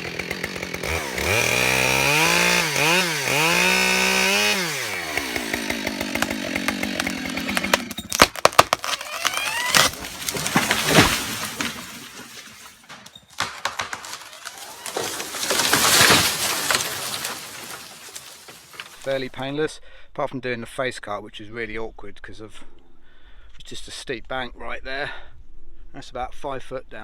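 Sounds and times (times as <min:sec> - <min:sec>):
chainsaw cutting: 0:00.0 - 0:19.4
tree crashing to the ground: 0:00.0 - 0:19.4
wood cracking: 0:00.0 - 0:19.4.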